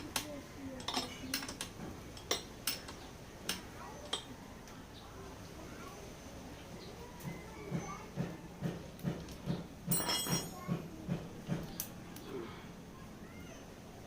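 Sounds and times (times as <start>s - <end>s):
metal tools clinking: 0.0s - 4.3s, 9.9s - 10.7s.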